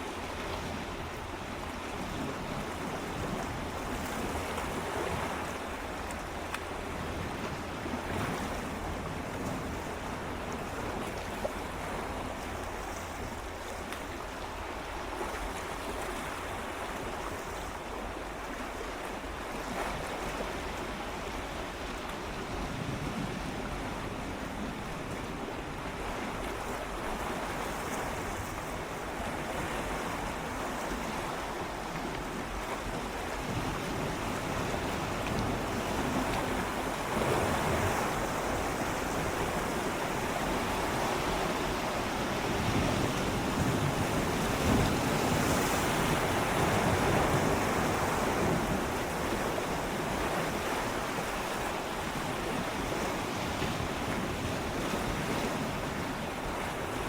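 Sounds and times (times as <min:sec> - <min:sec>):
sea waves lapping against rocks: 0:00.0 - 0:57.0
wind on microphone: 0:32.3 - 0:57.0.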